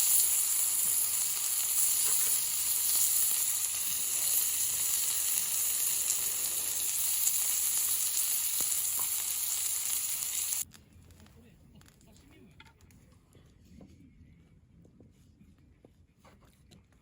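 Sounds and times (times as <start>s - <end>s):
food sizzling in a hot pan: 0.0s - 10.7s.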